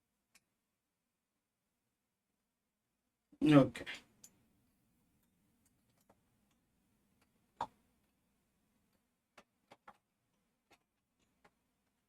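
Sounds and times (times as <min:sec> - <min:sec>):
plastic model parts clicking: 0:08.9 - 0:12.0.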